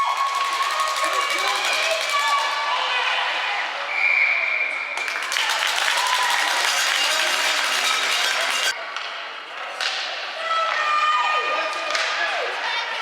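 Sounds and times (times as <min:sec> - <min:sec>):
crowd clapping and cheering: 0:00.0 - 0:03.6, 0:04.8 - 0:08.8
high shrill tone: 0:05.9 - 0:08.7.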